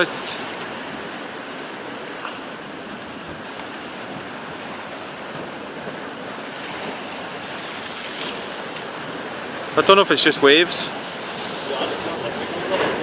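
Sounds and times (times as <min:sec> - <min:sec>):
wind buffeting microphone: 0:00.0 - 0:09.9
sea waves washing on shore: 0:00.0 - 0:13.0.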